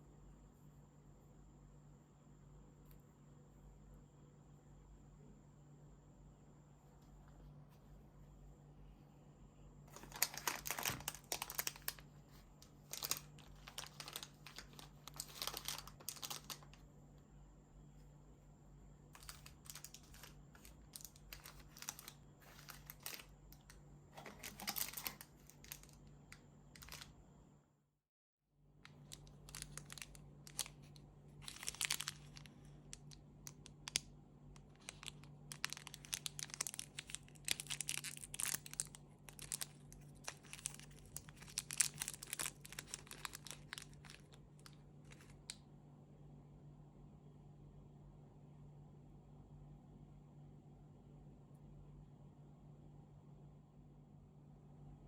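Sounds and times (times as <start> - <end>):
wrappers crinkling and tearing: 9.9 - 16.8, 19.2 - 26.0, 26.8 - 27.1, 28.9 - 34.0, 34.6 - 45.6.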